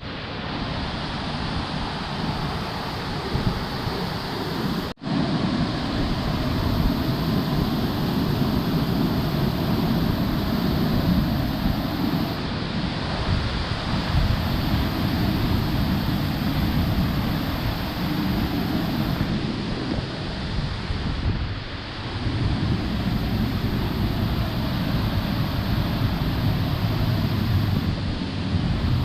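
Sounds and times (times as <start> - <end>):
wind buffeting microphone: 0.0 - 29.0
waterfall rushing: 1.1 - 12.6, 13.7 - 19.4, 22.1 - 28.0.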